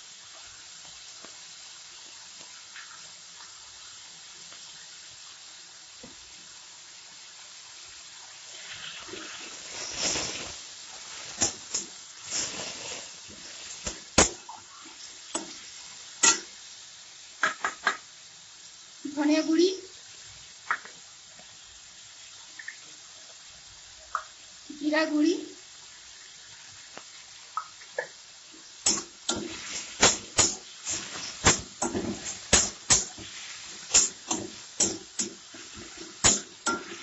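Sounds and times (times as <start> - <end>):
masala sizzling in oil: 0.0 - 37.0
steel spatula scraping pan: 30.9 - 37.0.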